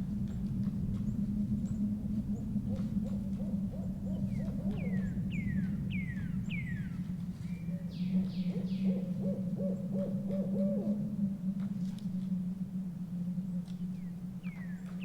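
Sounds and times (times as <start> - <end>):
steady low drone: 0.0 - 15.0
owl hooting: 2.4 - 6.0, 7.8 - 11.1.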